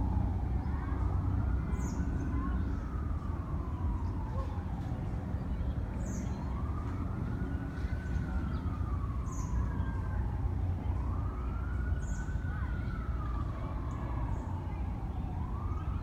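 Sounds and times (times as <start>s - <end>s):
emergency siren wailing: 0.0s - 16.0s.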